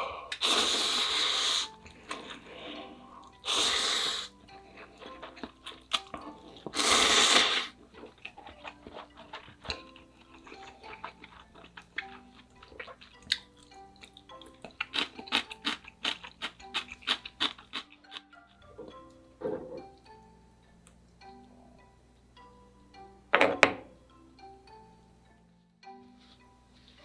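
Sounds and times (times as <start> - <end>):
soft background music: 0.0 - 27.0
loud slurp: 0.3 - 2.3, 3.4 - 4.4, 6.6 - 7.8
wet chewing and mouth smacks: 4.5 - 19.0.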